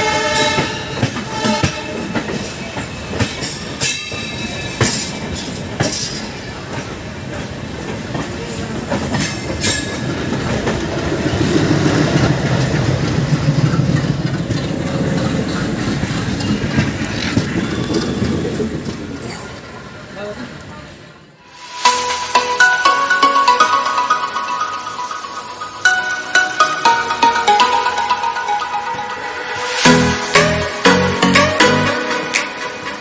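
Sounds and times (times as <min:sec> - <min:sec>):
wheels clacking over rail joints: 0:00.0 - 0:21.1
diesel locomotive engine drone: 0:00.0 - 0:33.0
moving train running noise: 0:00.0 - 0:33.0
passing train rushing past: 0:00.0 - 0:33.0.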